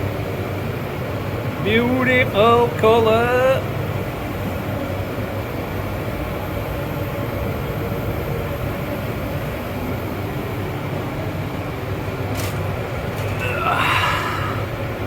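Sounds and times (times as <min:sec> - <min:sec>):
ventilation fans humming: 0:00.0 - 0:15.0.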